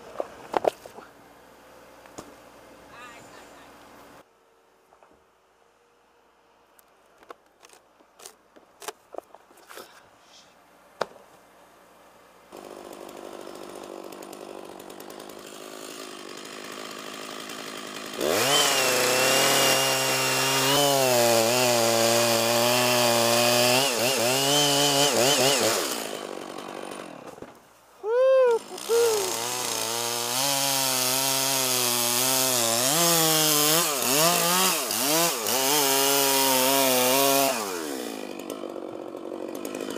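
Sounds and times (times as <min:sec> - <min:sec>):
chainsaw cutting wood: 0:07.6 - 0:09.0, 0:12.5 - 0:39.9.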